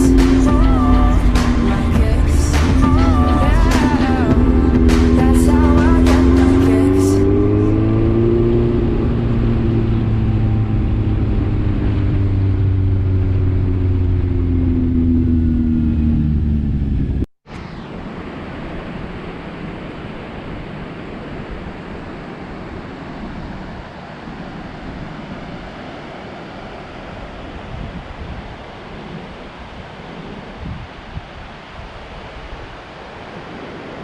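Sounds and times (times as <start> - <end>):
motorcycle engine running: 0.0 - 17.2
steady rushing noise: 0.0 - 34.0.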